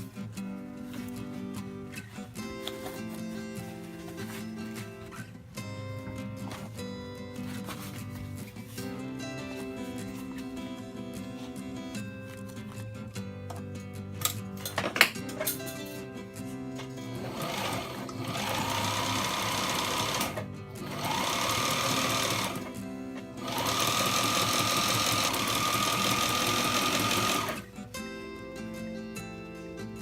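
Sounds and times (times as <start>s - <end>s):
background music: 0.0s - 30.0s
sewing machine motor whine: 17.2s - 22.7s, 23.4s - 27.6s.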